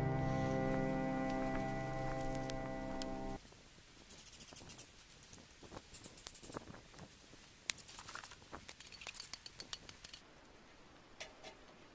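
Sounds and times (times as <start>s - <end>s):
wood fire crackling: 0.0s - 3.4s.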